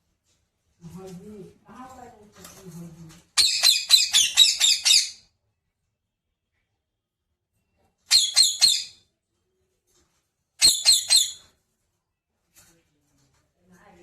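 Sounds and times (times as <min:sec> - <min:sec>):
parrot shrill calls: 0:03.4 - 0:05.2, 0:08.1 - 0:09.0, 0:10.6 - 0:11.5.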